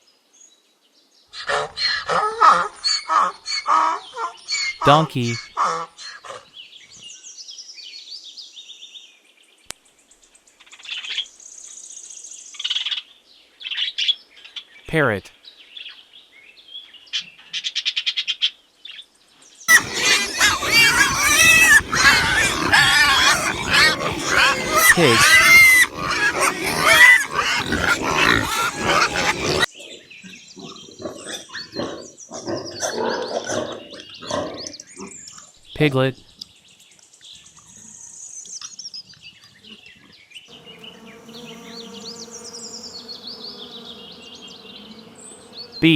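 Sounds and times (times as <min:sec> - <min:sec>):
pigs grunting and squealing: 0:04.8 - 0:05.4, 0:19.7 - 0:29.7
small birds chirping: 0:19.7 - 0:29.7, 0:40.5 - 0:45.9.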